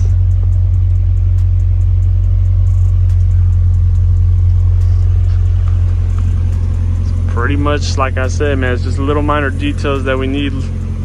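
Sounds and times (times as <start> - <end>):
engine idling with low rumble: 0.0 - 11.0.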